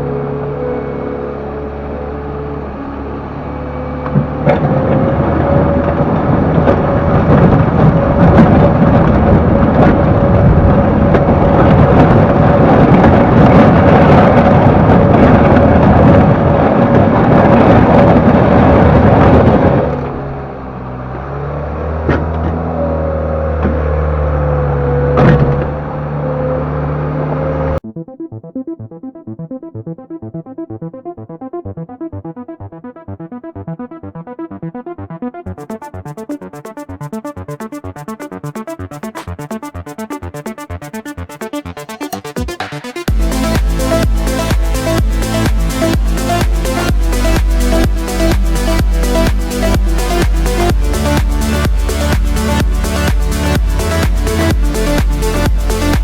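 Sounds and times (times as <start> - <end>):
diesel engine and hydraulics: 0.0 - 27.8
hydraulic whine: 0.0 - 27.8.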